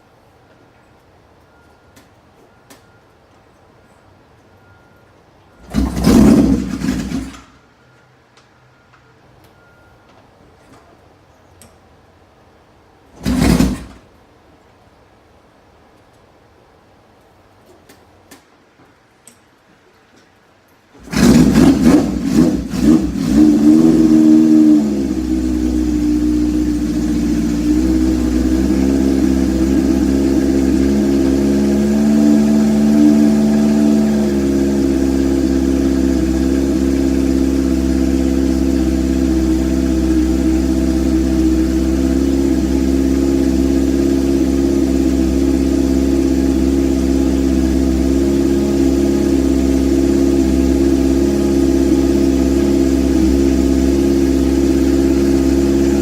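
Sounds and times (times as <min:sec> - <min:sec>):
motorcycle engine idling: 0:21.0 - 0:56.0.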